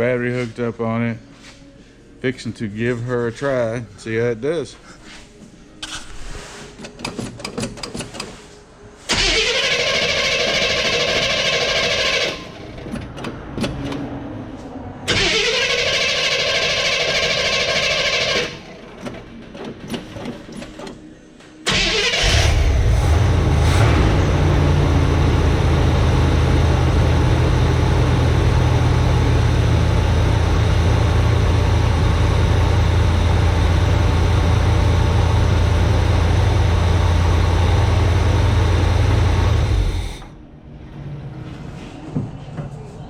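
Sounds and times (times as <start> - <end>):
starter motor whining: 21.7 - 40.3
truck engine idling: 21.8 - 40.3.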